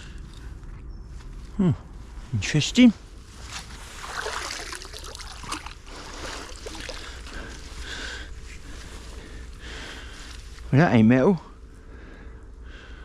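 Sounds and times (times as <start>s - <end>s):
water splashing and trickling: 3.3s - 7.9s.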